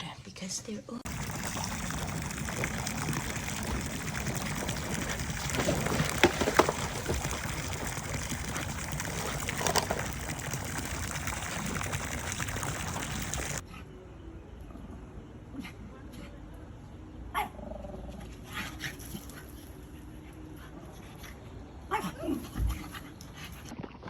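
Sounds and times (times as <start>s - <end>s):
running water rushing: 1.1s - 13.6s.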